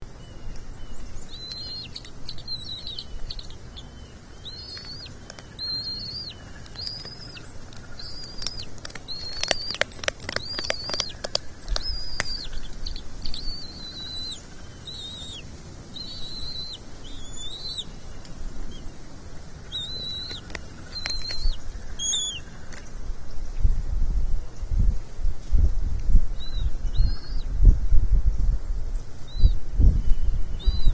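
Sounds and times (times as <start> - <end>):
eagle chicks peeping: 0.0 - 23.8, 26.1 - 27.8, 28.9 - 30.9
sharp clicks: 4.7 - 13.6, 19.8 - 22.9.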